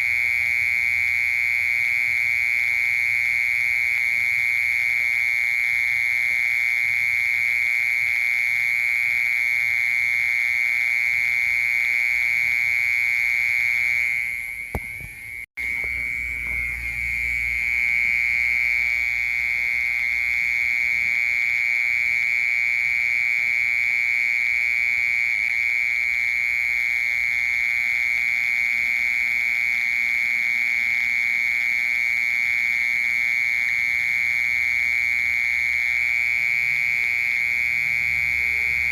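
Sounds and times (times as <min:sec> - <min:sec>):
cricket trilling: 0:00.0 - 0:38.9.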